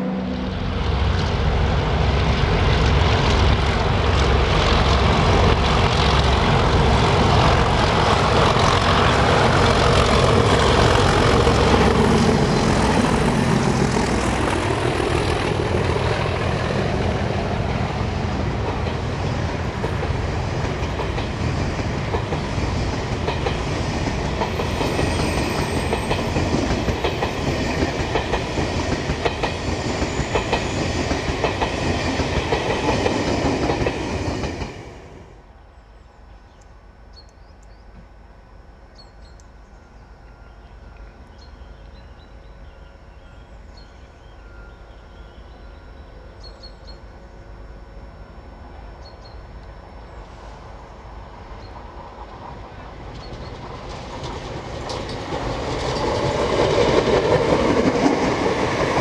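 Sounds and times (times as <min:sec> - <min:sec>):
diesel locomotive engine passing: 0:00.0 - 0:37.1, 0:37.9 - 0:59.0
wheels clicking over rail joints: 0:52.2 - 0:59.0.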